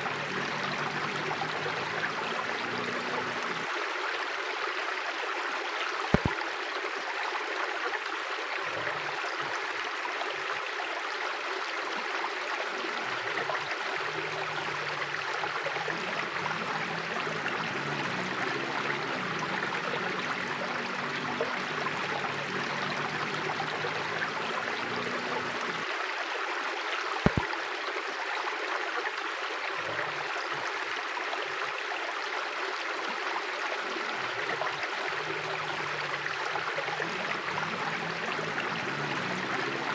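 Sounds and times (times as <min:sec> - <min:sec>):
sharp click: 0:06.2 - 0:06.4
river rushing: 0:12.8 - 0:25.9, 0:33.8 - 0:39.9.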